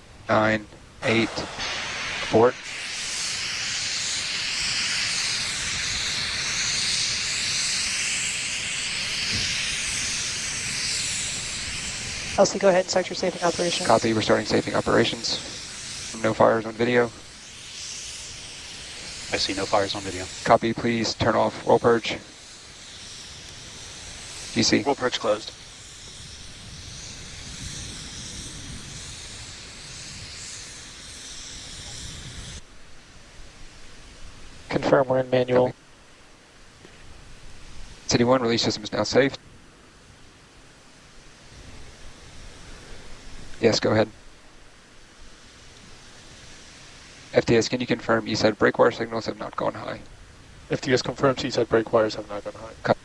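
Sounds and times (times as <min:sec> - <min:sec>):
low uneven rumble: 0:00.0 - 0:32.5
gas venting hiss: 0:00.0 - 0:53.0.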